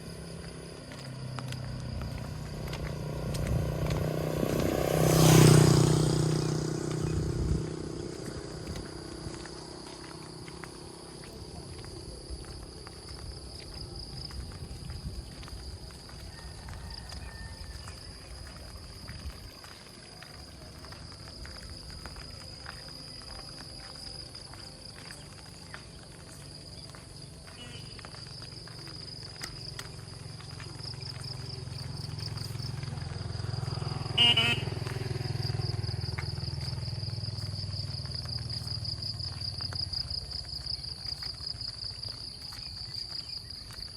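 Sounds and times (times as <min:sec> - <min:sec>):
insects chirring: 0:00.0 - 0:43.9
vehicle engine rumble: 0:00.0 - 0:43.9
short horn beep: 0:34.1 - 0:34.8.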